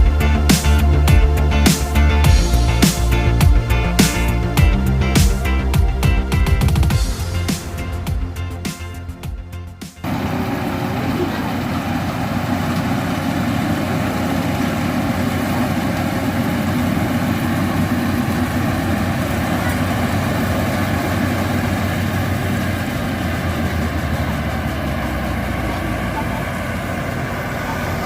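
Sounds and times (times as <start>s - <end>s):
deep low hum: 0.0s - 10.2s
combine harvester engine and threshing: 10.0s - 28.0s.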